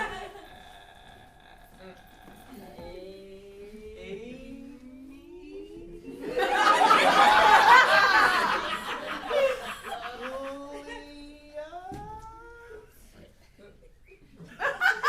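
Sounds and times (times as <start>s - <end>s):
audience laughing: 0.0s - 0.7s, 6.0s - 10.8s
faint drawn-out vocal sound: 0.0s - 14.3s.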